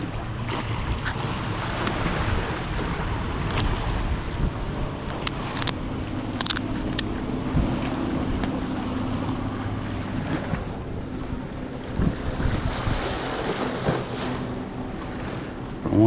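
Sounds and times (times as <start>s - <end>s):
water lapping: 0.0s - 16.0s
wind buffeting microphone: 0.0s - 16.0s
sharp clicks: 3.5s - 3.7s, 5.0s - 7.1s.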